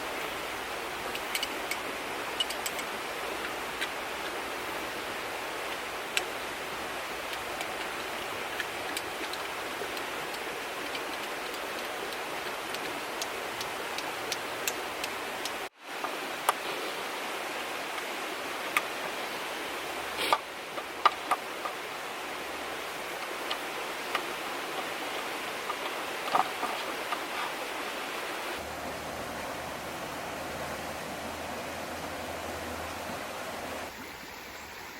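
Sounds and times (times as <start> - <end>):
river rushing: 0.0 - 34.9
light clicks and ticks: 1.1 - 4.4, 7.2 - 16.6.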